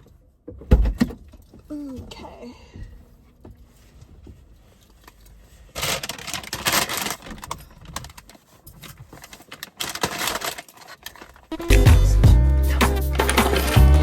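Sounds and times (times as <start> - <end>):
rustling with small clicks: 3.6 - 11.9.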